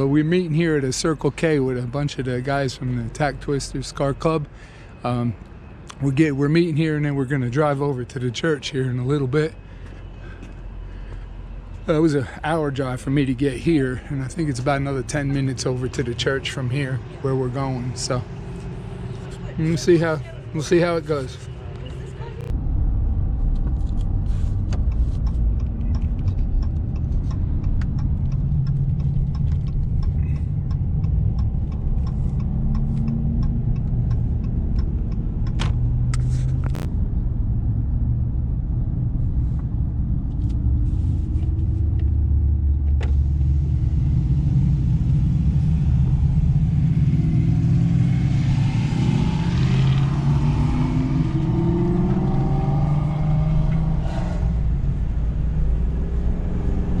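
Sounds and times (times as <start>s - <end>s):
car engine accelerating: 11.9s - 57.0s.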